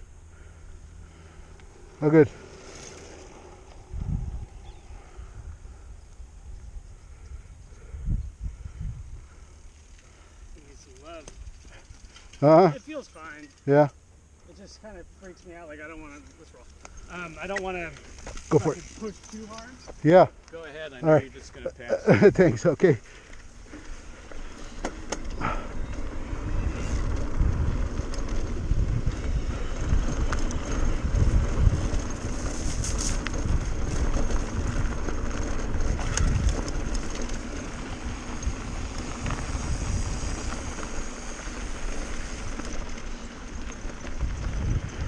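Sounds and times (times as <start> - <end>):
wind buffeting microphone: 1.1 - 9.7, 23.5 - 45.0
bike rattling over rocks: 15.8 - 20.1, 23.1 - 45.0
tyres rumbling on dirt: 15.8 - 45.0.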